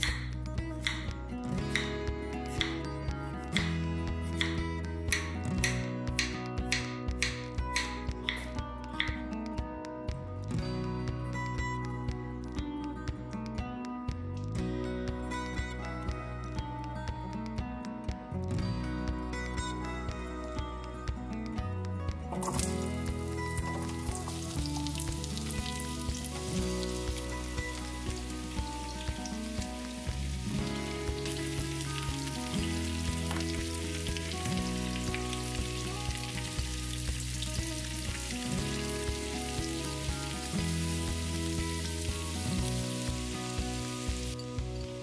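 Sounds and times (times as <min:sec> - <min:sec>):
background music: 0:00.0 - 0:45.0
carrots sizzling in oil: 0:22.4 - 0:45.0.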